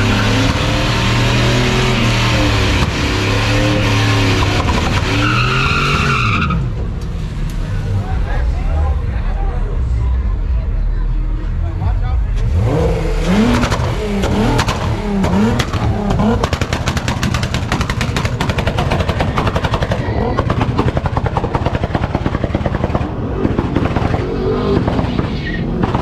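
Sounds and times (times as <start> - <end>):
car engine revving: 0.0 - 8.3, 12.1 - 26.0
sharp exhaust pops: 4.4 - 5.3, 13.5 - 26.0.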